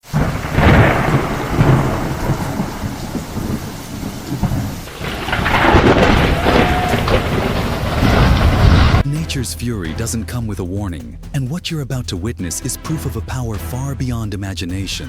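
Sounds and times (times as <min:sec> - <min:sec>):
rain-like hiss: 0:00.0 - 0:09.0
deep storm rumble: 0:00.0 - 0:09.1.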